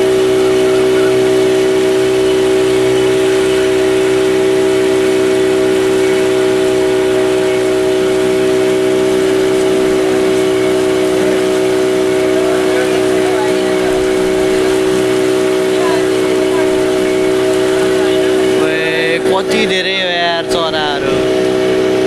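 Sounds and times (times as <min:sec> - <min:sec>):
motorboat engine running: 0:00.0 - 0:22.0.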